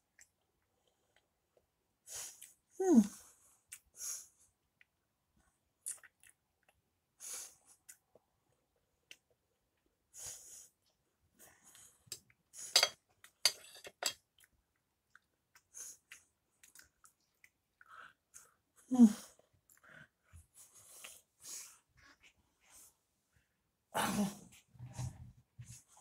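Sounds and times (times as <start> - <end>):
person chewing: 5.8 - 6.8, 14.2 - 18.1.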